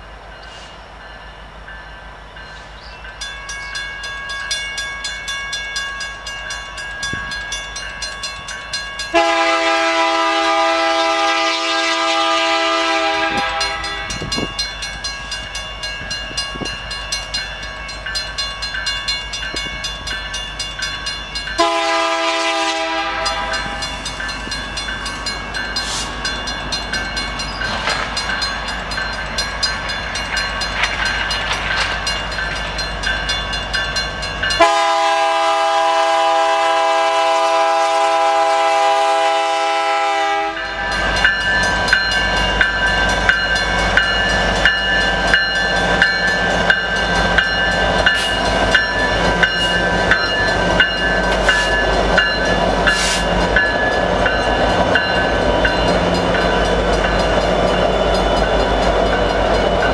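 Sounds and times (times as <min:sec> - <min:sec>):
locomotive air horn blast: 0:09.1 - 0:14.3, 0:21.6 - 0:23.8, 0:34.6 - 0:40.8.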